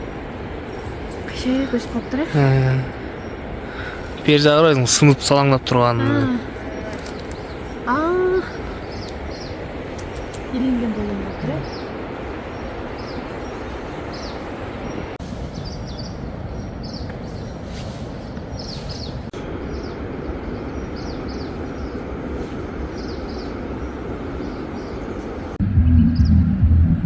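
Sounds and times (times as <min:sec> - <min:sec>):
small birds chirping: 0:00.0 - 0:26.8
outdoor rushing noise: 0:25.6 - 0:27.0.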